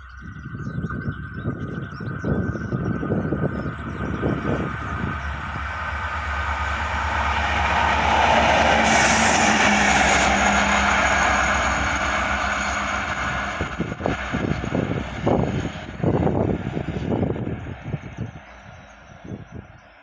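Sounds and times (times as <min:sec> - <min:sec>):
diesel locomotive engine drone: 0:00.0 - 0:20.0
rail noise: 0:02.7 - 0:20.0
brief high hiss: 0:08.7 - 0:10.6.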